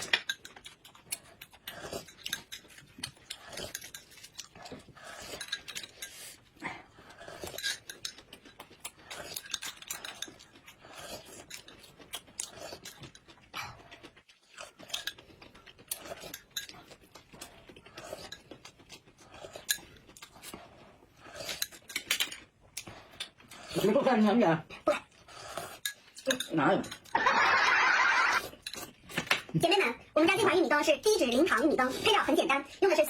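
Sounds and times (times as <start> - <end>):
chewing and biting: 0.0 - 24.0, 28.1 - 29.6.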